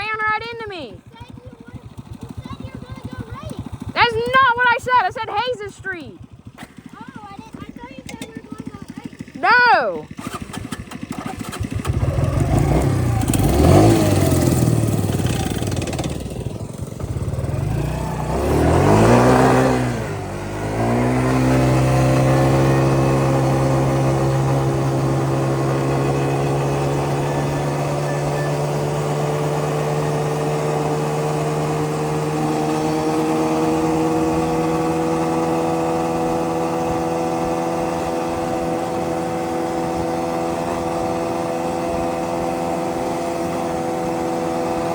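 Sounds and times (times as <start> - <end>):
atv engine revving and droning: 0.0 - 44.9.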